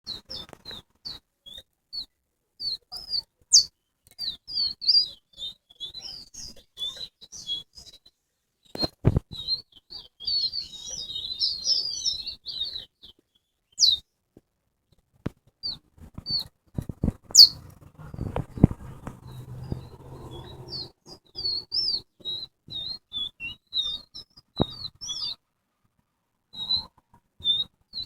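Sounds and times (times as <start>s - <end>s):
finch chirping and twittering: 0.1s - 8.1s, 8.7s - 14.0s, 15.6s - 25.4s, 26.5s - 28.0s.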